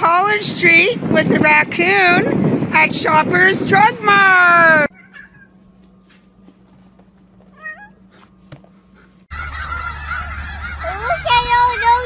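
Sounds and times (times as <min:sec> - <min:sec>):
cat meowing: 0:04.9 - 0:05.6, 0:07.5 - 0:08.0
geese honking: 0:09.3 - 0:12.0.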